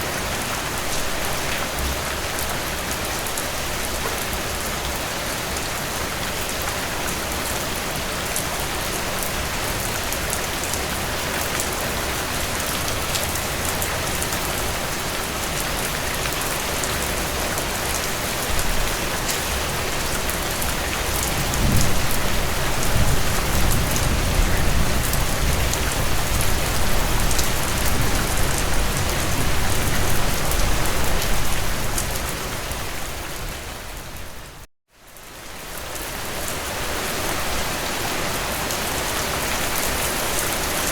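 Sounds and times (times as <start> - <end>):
heavy rain on a tin roof: 0.0 - 40.9
low thunder rumble: 21.3 - 32.0.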